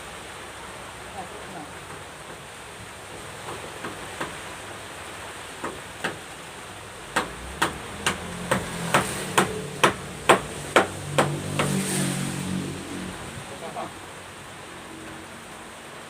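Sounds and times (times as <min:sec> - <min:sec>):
hammer strikes: 0:07.1 - 0:11.9.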